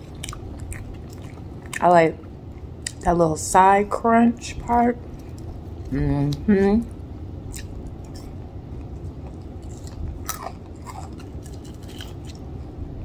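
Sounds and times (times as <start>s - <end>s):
person chewing crunchy chicken skin: 0.0s - 1.8s, 7.5s - 12.6s.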